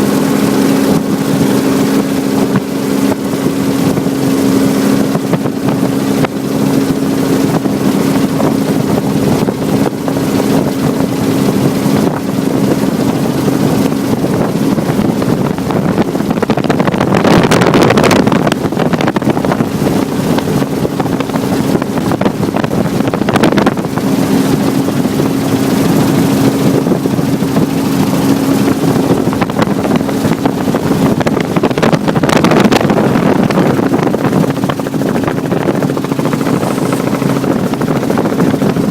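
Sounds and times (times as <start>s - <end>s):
wind buffeting microphone: 0.0s - 38.9s
helicopter engine and rotor: 32.0s - 38.9s.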